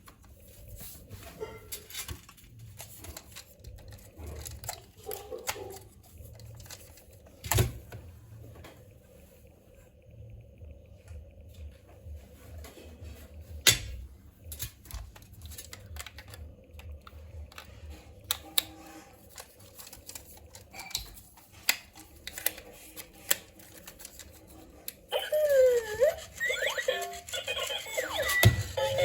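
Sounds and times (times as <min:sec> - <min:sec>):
faint low rumble: 0:07.2 - 0:18.3
music: 0:26.7 - 0:29.0.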